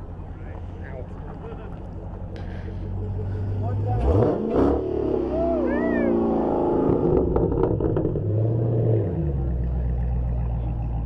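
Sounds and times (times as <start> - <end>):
loud engine revving: 3.6 - 9.7.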